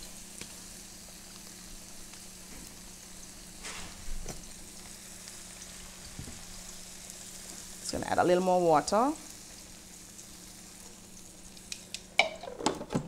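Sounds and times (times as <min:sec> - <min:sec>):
plantain sizzling in a pan: 0:00.0 - 0:12.7.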